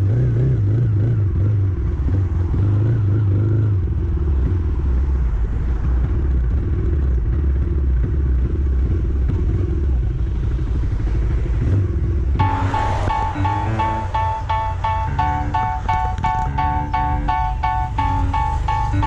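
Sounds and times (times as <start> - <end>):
moving vehicle rumble: 0.0 - 19.0
plucked music: 12.4 - 19.0.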